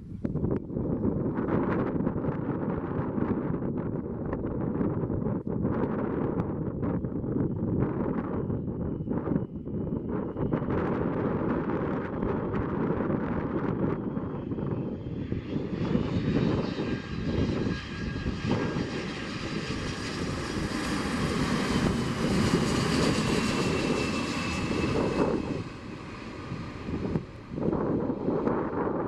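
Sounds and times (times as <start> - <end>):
airliner engines passing by: 0.0 - 29.0.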